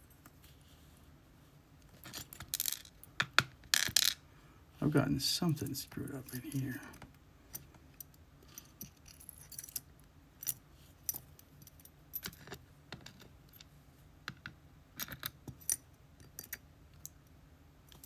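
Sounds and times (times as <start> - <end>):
small metal lock parts clicking: 15.0 - 17.2.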